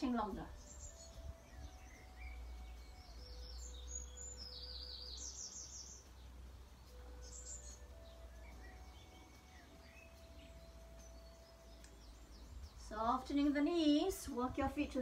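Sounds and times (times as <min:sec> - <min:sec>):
birds chirping and trilling: 0:00.0 - 0:15.0.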